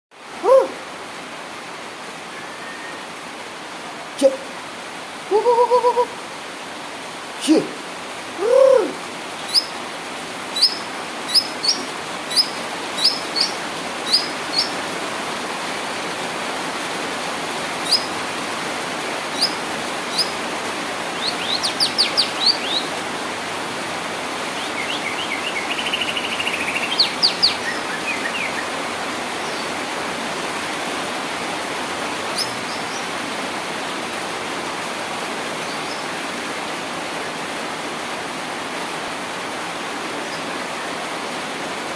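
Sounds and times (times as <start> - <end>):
steady hiss: 1.0 - 41.9
bird calling: 8.4 - 9.8, 10.5 - 14.8, 17.8 - 18.2, 19.3 - 20.5, 21.1 - 22.9, 24.5 - 28.7.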